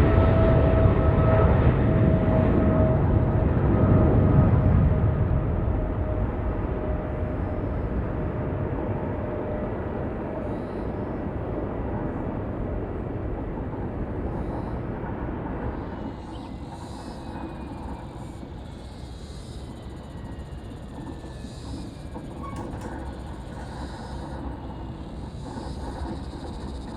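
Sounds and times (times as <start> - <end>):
strong wind buffeting microphone: 0.0 - 16.7
distant jet engine whine: 0.0 - 26.9.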